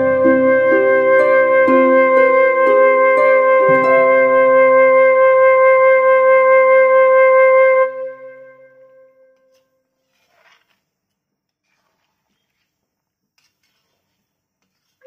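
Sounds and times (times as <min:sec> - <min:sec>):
flute melody: 0:00.0 - 0:09.4.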